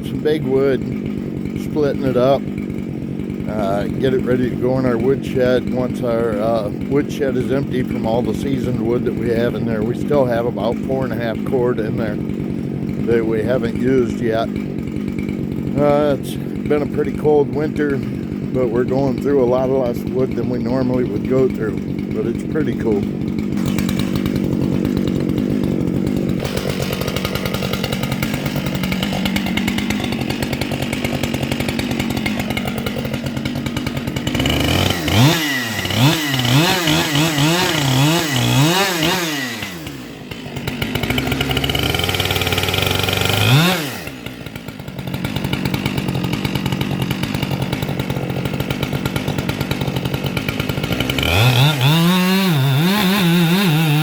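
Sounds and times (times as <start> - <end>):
chainsaw idling and revving: 0.0 - 54.0.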